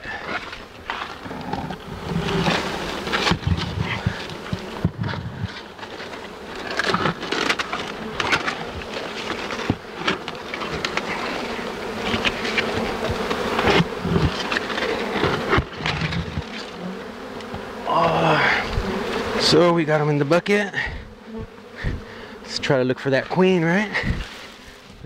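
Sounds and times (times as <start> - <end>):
bee swarm buzzing: 0.0 - 25.0
knocks and scrapes on bucket: 0.9 - 16.8.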